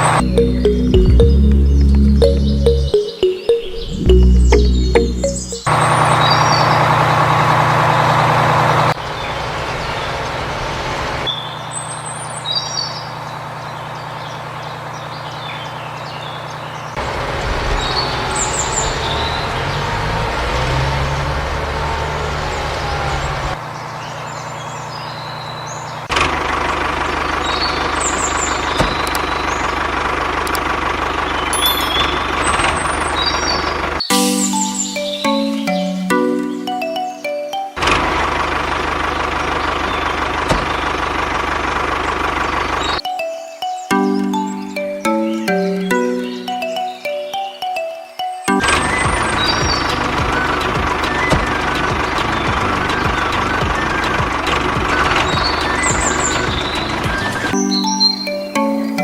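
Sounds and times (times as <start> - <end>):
tractor engine running: 0.0 - 3.0, 4.0 - 11.3, 25.6 - 34.1, 37.8 - 43.0, 48.6 - 57.6
small birds chirping: 0.0 - 6.9, 9.0 - 17.0, 22.3 - 26.1, 27.0 - 37.7, 39.1 - 59.0.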